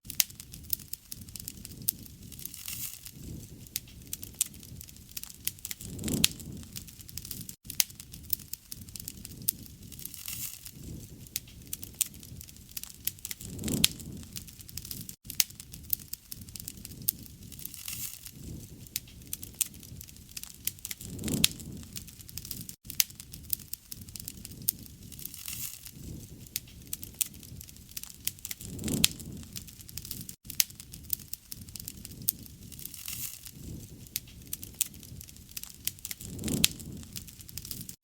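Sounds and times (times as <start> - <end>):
wood crackling and popping: 0.0 - 38.0
low rushing of fire: 0.1 - 38.0.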